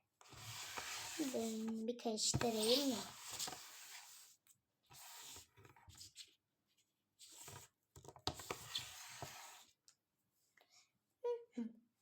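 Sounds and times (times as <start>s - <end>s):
rustling and handling noises: 0.2s - 9.7s.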